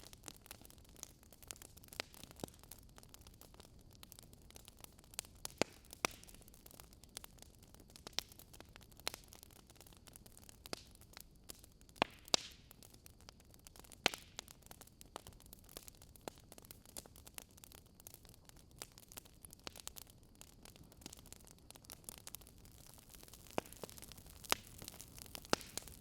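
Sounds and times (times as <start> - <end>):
wood fire crackling: 0.0 - 26.0
logs popping: 22.9 - 26.0.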